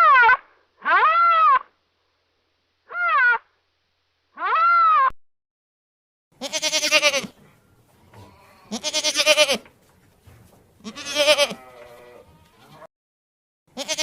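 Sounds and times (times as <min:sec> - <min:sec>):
animal bleating: 0:06.4 - 0:07.4, 0:08.1 - 0:09.7, 0:10.8 - 0:12.9, 0:13.7 - 0:14.0.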